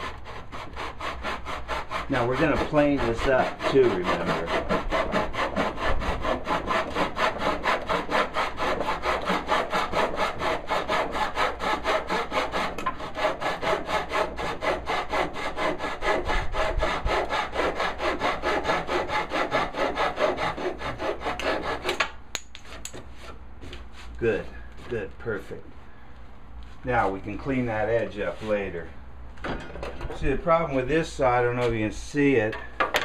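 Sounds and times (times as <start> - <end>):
hand saw cutting wood: 0.0 - 25.1.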